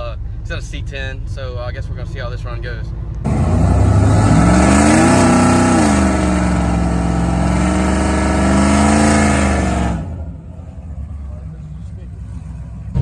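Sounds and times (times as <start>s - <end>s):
truck engine at full throttle: 3.2s - 13.0s.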